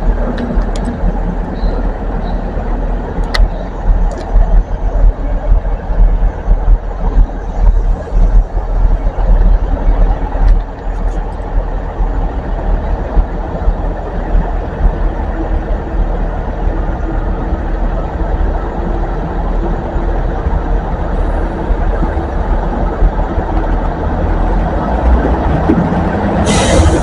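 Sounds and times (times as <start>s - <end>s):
train engine rumbling: 0.0s - 27.0s.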